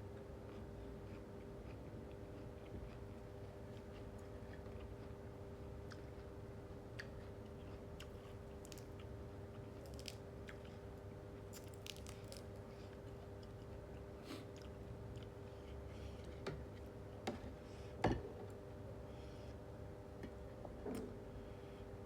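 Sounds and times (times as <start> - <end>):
steady low hum: 0.0 - 22.0
person chewing food: 0.2 - 17.4.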